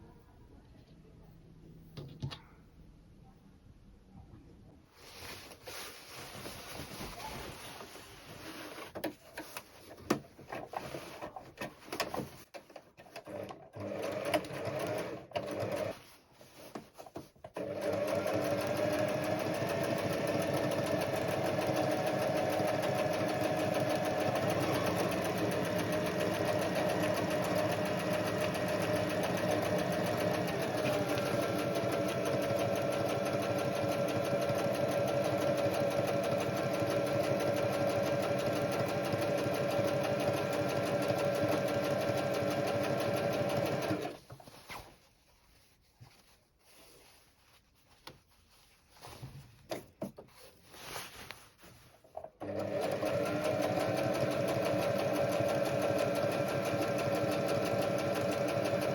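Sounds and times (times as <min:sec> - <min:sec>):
sewing machine stitching: 0:10.4 - 0:16.1, 0:17.4 - 0:44.2, 0:52.1 - 0:58.9.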